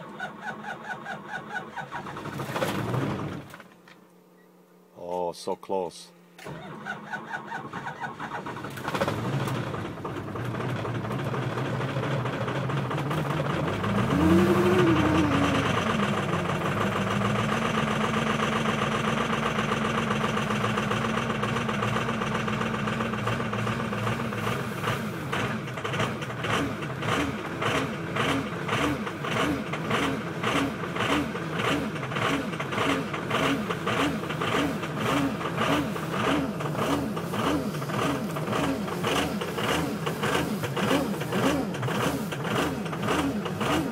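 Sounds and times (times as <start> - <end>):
diesel engine starting and idling: 0.0 - 3.8, 6.2 - 43.9.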